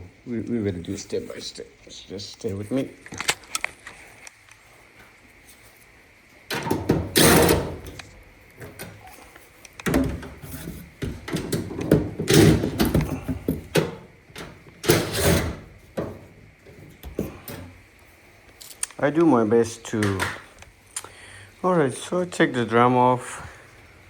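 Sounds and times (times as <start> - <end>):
dryer cabinet parts knocking: 6.5 - 8.0, 9.8 - 17.8.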